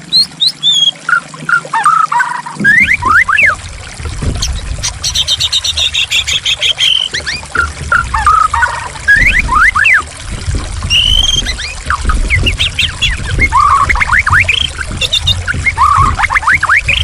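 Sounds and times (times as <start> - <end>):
trickling water: 0.0 - 17.0
bird singing whistled notes: 0.1 - 1.0, 1.8 - 3.6, 8.2 - 10.0, 10.9 - 17.0
high rattling bird trill: 4.4 - 10.0, 10.9 - 17.0.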